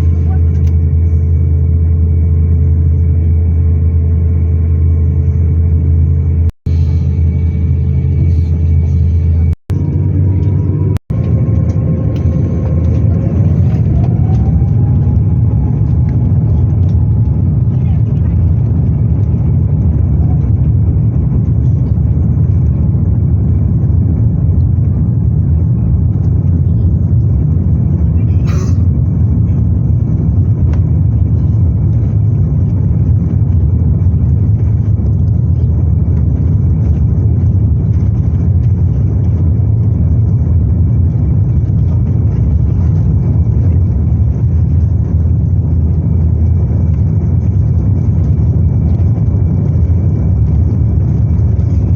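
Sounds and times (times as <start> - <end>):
airliner cabin engine rumble: 0.0 - 51.9.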